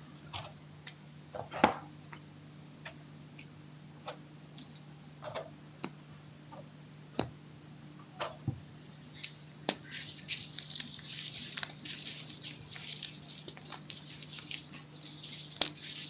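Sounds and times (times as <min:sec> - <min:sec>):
steady low hum: 0:00.0 - 0:16.0
chalk crunching: 0:08.8 - 0:16.0.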